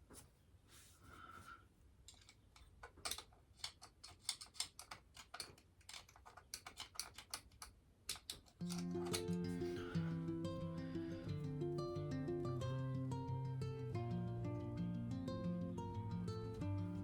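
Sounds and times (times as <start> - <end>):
hand tools clicking and tapping: 2.1 - 10.0.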